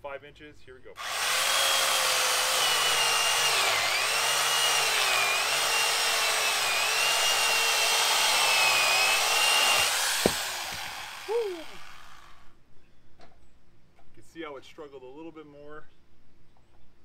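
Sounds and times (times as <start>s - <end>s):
electric chainsaw cutting wood: 1.0s - 12.5s.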